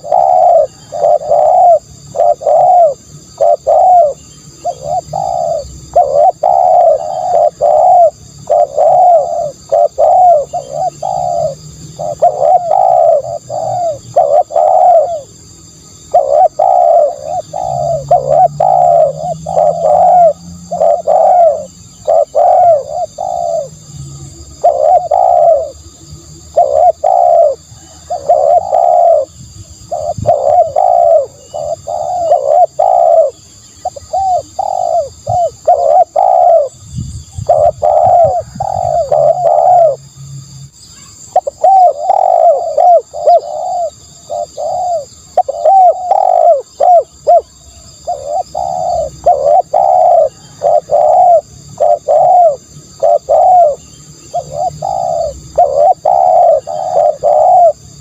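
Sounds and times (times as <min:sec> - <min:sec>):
dove cooing: 0:00.0 - 0:40.1, 0:41.0 - 0:58.0.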